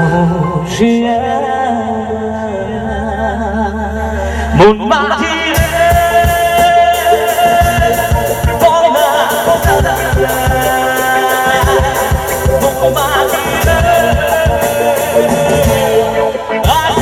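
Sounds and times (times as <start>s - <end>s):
wavering melody line: 3.3s - 17.0s
live band music: 3.4s - 17.0s
busy drum beat: 5.5s - 17.0s.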